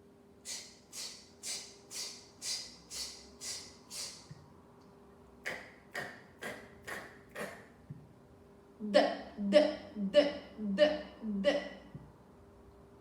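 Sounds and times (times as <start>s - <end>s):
woman making hissing sounds: 0.4s - 4.4s.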